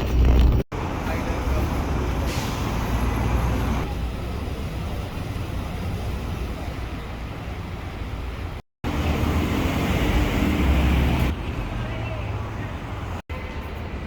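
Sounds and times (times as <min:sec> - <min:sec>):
outdoor background rumble: 0:00.0 - 0:11.7.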